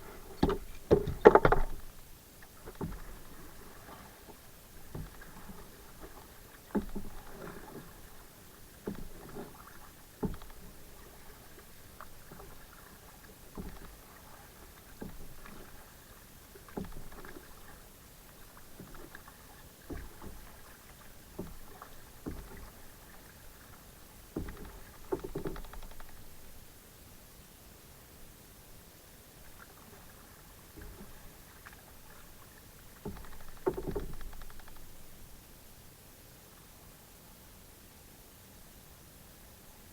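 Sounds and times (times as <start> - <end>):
paddle splashing: 0.0 - 26.8, 29.4 - 35.8.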